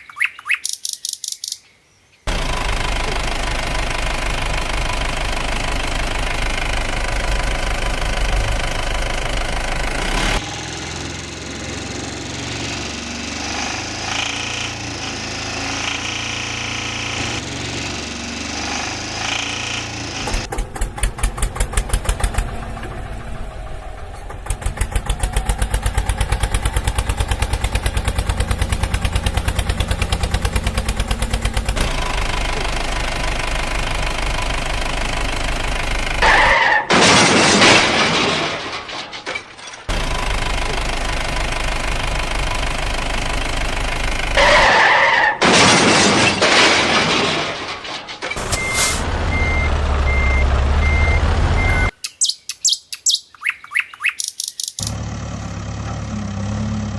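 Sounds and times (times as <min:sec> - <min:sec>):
cartoon engine chugging: 0:02.3 - 0:17.4, 0:24.4 - 0:36.9
loud noisy crash bursts: 0:36.2 - 0:39.2, 0:44.4 - 0:49.2.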